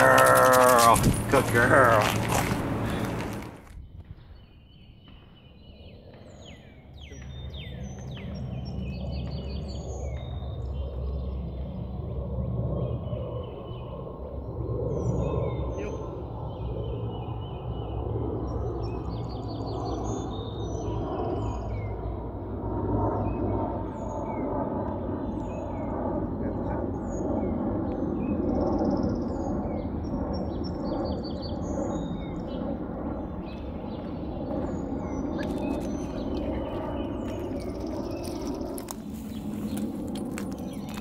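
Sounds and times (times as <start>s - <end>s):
low outdoor rumble: 0.0s - 4.5s, 29.2s - 41.0s
songbirds chirping and trilling: 0.0s - 41.0s.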